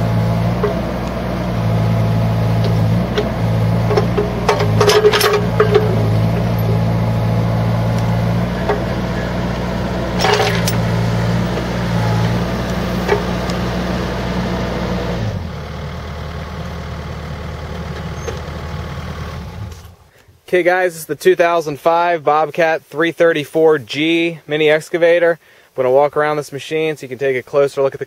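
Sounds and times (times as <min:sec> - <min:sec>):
excavator diesel engine running: 0:00.0 - 0:20.1
sharp clicks or knocks: 0:00.6 - 0:01.2, 0:02.4 - 0:13.8.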